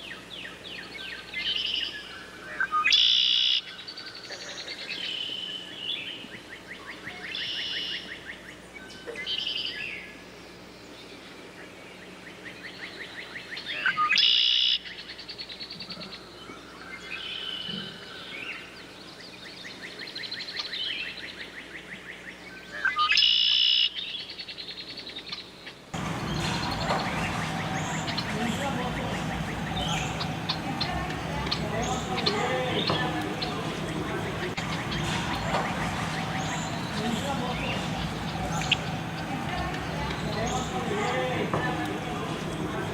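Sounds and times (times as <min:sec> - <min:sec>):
songbirds trilling and chirping: 0:00.0 - 0:42.9
fuller noisier sound: 0:24.6 - 0:42.9.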